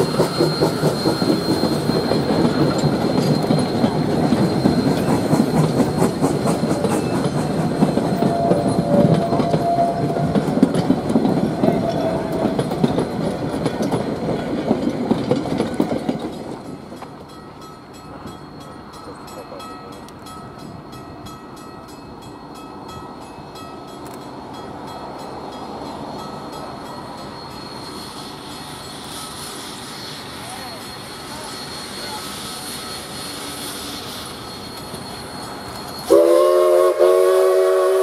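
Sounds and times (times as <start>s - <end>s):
flange squeals: 0.0s - 13.2s, 25.7s - 36.6s
wheels clicking over rail joints: 0.0s - 22.0s
distant train rumble: 0.0s - 38.0s.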